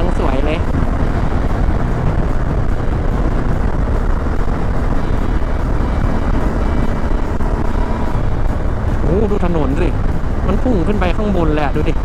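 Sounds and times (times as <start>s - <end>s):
motorcycle engine running: 0.0s - 12.0s
wind noise on microphone: 0.0s - 12.0s.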